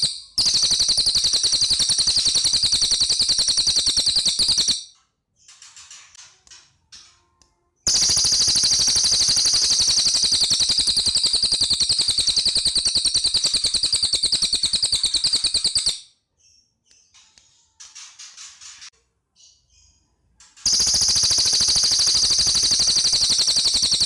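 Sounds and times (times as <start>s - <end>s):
bird rapid rattling trill: 0.0s - 4.9s, 7.9s - 16.1s, 20.6s - 24.0s.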